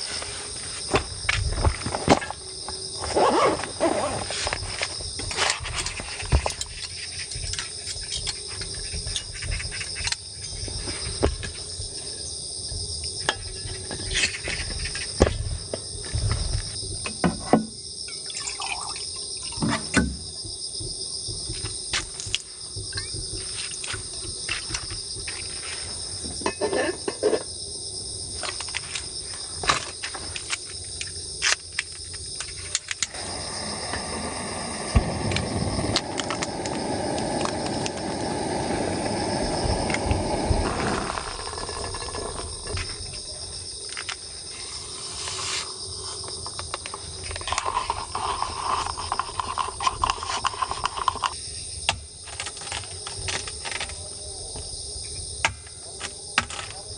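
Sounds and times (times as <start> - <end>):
crickets trilling: 0.0 - 56.9
steady rushing noise: 33.2 - 42.6.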